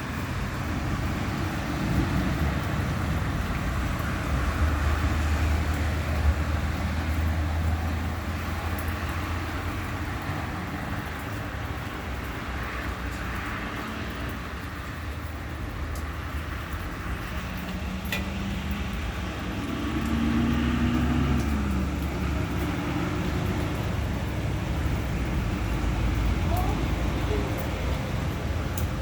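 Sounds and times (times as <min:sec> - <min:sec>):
road traffic: 0:00.0 - 0:29.0
engine rising and falling in pitch: 0:17.8 - 0:24.1.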